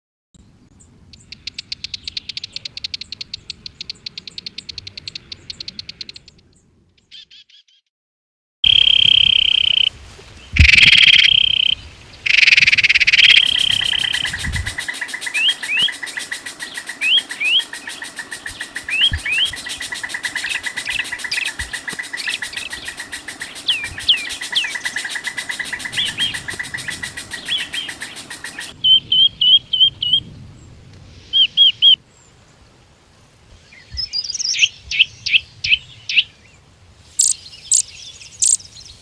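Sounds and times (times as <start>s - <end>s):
high whistled animal tones: 8.7s - 9.9s, 10.6s - 29.3s
short rising chirps: 10.6s - 28.7s
noisy bursts: 10.6s - 28.8s
high rattling trill: 12.3s - 28.7s
high pulsing trill: 13.1s - 28.8s.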